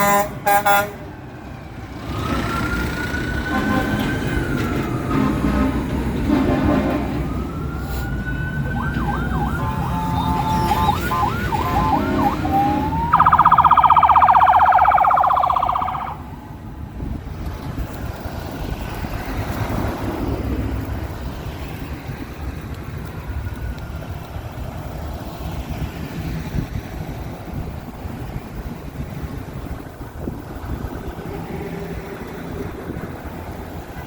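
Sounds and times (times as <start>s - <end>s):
engines and traffic rumbling: 0.0s - 34.0s
police siren yelping: 7.3s - 16.8s.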